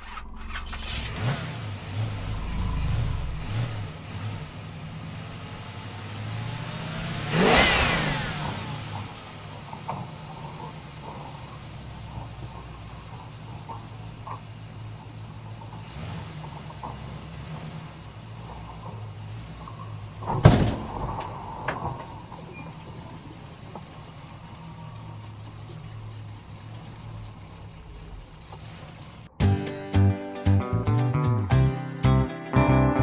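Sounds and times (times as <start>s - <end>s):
guitar music: 29.4s - 33.0s.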